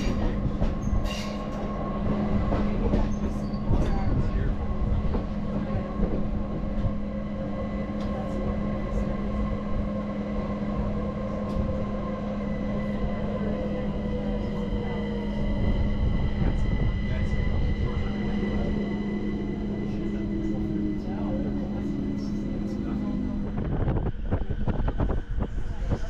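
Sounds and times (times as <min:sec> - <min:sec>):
train rumbling on rails: 0:00.0 - 0:26.0.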